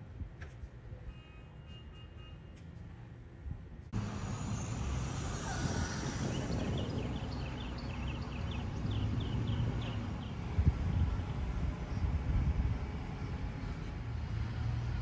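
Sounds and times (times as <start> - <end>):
steady low rumble: 3.9 - 14.1.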